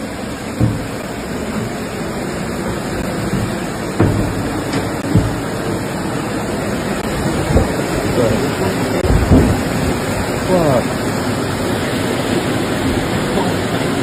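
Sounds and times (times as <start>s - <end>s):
floodwater rushing: 0.0s - 14.0s
dull thumps: 0.4s - 8.2s, 9.0s - 10.4s.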